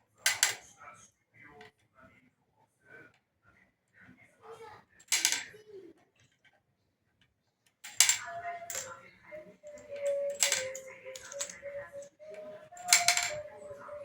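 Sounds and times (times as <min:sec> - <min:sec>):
game pieces clicking: 0:07.9 - 0:08.9, 0:09.7 - 0:12.2, 0:12.8 - 0:13.7.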